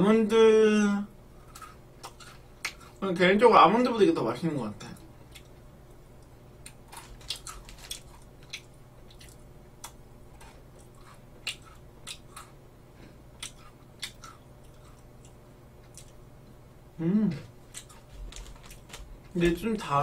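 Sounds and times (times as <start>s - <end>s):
faint low hum: 0.0s - 20.0s
biscuit sticks crunching: 6.6s - 12.6s, 17.7s - 19.9s.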